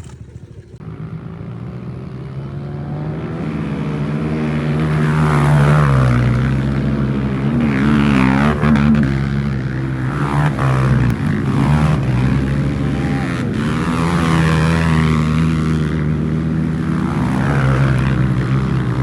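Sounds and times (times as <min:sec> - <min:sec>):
dirt bike engine running: 0:00.0 - 0:02.8.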